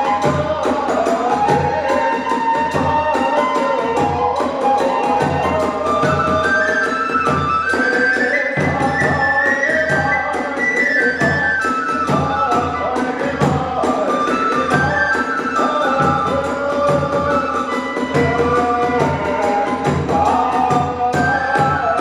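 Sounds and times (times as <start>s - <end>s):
bamboo flute melody: 0.0s - 22.0s
taiko drums beating: 11.2s - 22.0s.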